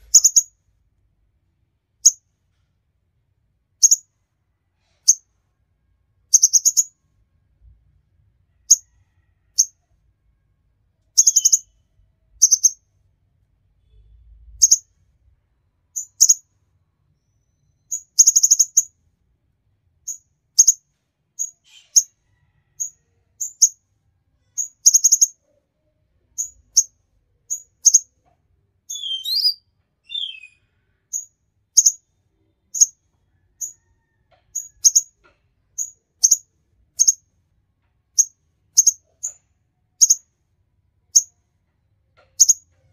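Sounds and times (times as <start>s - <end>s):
bird high sharp chirps: 0.0s - 0.5s, 11.2s - 11.8s, 12.4s - 12.8s, 28.9s - 32.0s
bird falling twittering phrase: 28.9s - 30.5s.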